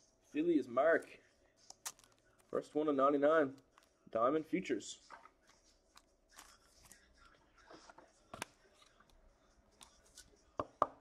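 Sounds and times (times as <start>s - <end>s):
trading cards rustling and clicking: 1.7s - 2.7s, 5.1s - 7.1s.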